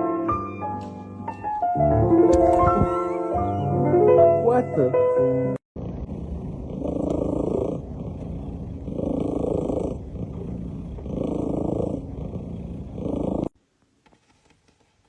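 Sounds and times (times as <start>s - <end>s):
cat purring: 5.8s - 13.6s.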